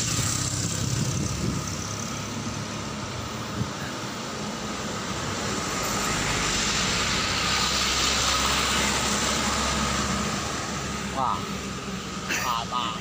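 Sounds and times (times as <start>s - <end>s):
wind noise on microphone: 0.0s - 4.0s
truck passing: 0.0s - 13.0s.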